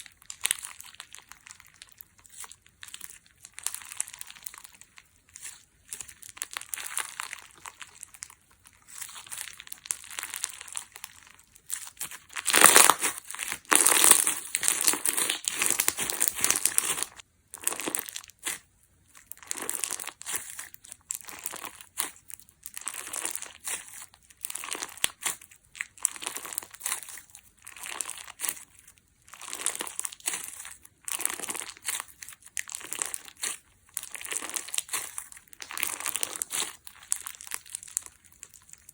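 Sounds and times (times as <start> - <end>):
slime crackling and popping: 0.0 - 38.9.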